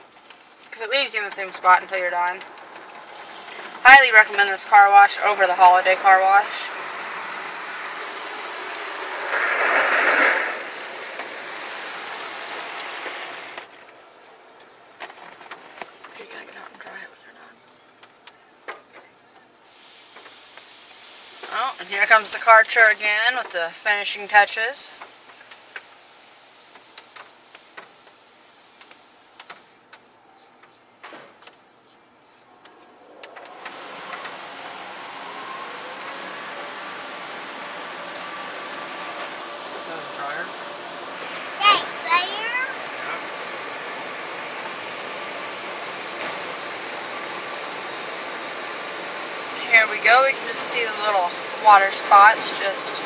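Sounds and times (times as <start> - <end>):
car wash water jets spraying: 0.0 - 17.0, 19.7 - 30.0, 33.1 - 53.0
hiss of water spray: 5.9 - 13.8, 19.7 - 23.0.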